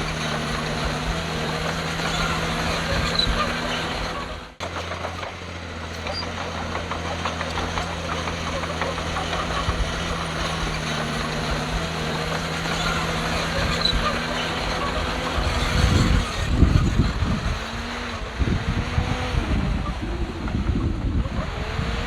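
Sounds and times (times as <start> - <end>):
diesel engine running: 0.0 - 22.0
wind buffeting microphone: 7.6 - 22.0.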